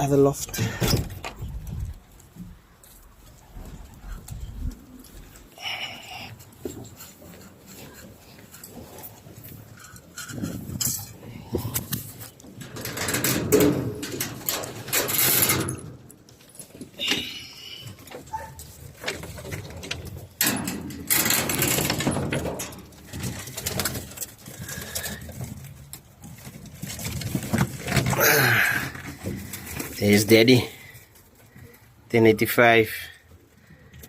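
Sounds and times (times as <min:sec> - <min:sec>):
rustling and knocking: 0:18.0 - 0:28.2.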